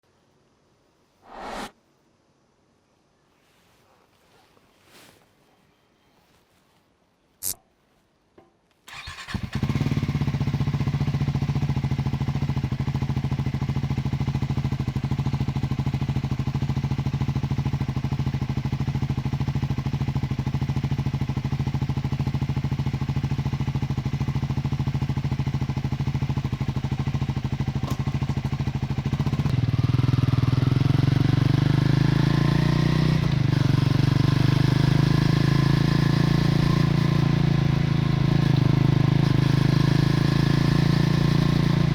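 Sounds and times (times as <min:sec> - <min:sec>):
motorcycle engine starting and idling: 0:08.9 - 0:41.9.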